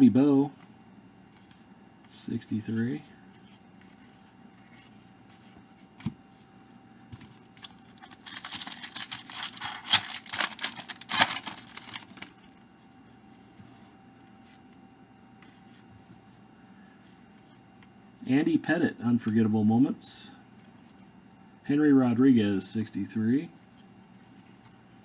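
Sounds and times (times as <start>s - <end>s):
card pack wrapper tearing and crinkling: 7.3s - 12.6s.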